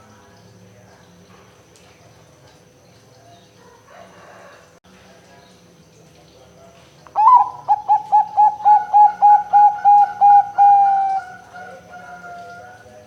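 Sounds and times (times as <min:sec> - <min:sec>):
dove cooing: 0:07.2 - 0:12.9.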